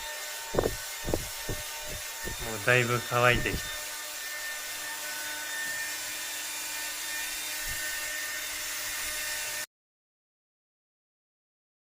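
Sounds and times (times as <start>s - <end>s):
hair dryer blowing: 0.0s - 9.7s.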